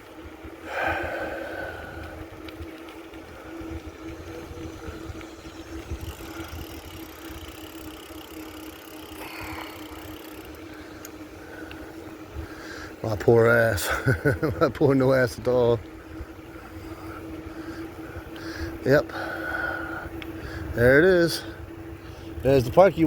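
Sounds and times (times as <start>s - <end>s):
constant hum: 0.0s - 23.0s
road noise: 0.0s - 23.0s
wind buffeting microphone: 0.2s - 7.9s.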